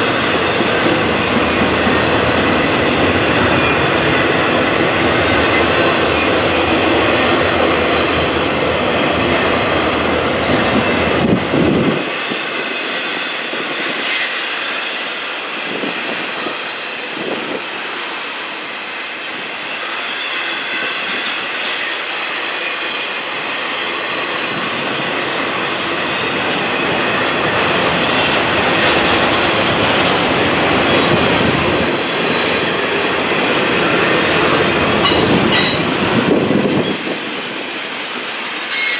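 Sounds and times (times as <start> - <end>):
train wheels clacking on rails: 0.0 - 38.9.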